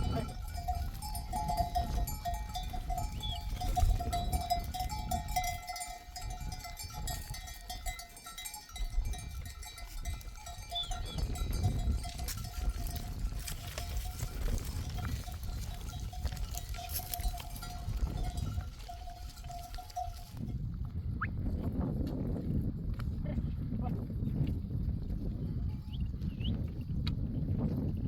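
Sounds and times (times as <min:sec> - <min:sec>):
sheep bells clinking: 0:00.0 - 0:20.8, 0:25.4 - 0:26.4.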